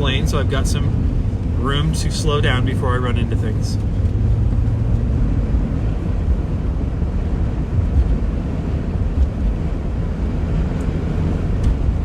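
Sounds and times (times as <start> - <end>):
car driving on icy road: 0.0 - 12.0.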